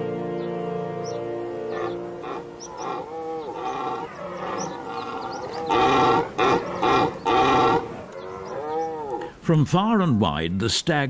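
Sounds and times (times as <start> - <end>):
deer stag roaring: 1.7 - 9.3.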